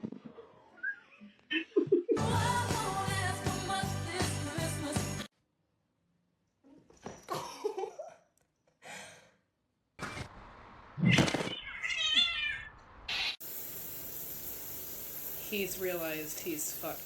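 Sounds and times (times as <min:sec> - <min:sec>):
cat meowing: 0:11.4 - 0:12.8.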